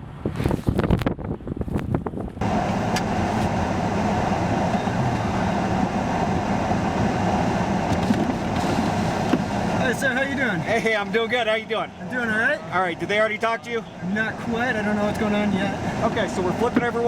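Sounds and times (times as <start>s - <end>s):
wind buffeting microphone: 0.0s - 11.0s
wind rushing over idling vehicles: 0.0s - 17.0s.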